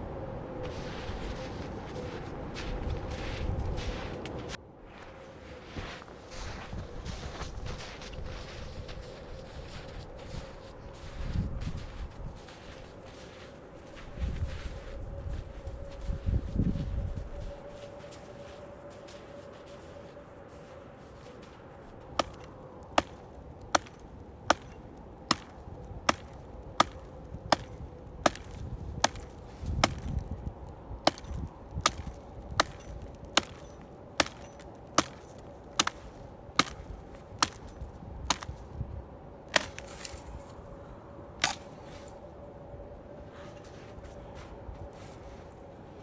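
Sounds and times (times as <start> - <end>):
wood being chopped: 22.2 - 38.7, 39.5 - 40.6, 41.4 - 42.1.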